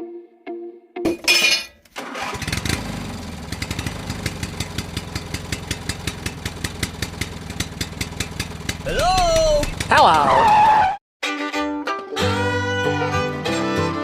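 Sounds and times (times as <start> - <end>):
tractor engine starting: 1.8 - 10.6.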